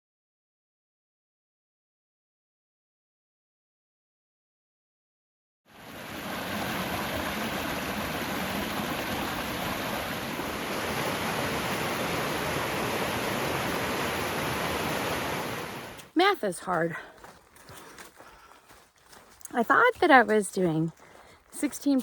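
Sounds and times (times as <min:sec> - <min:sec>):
mountain stream rushing: 0:05.7 - 0:17.7.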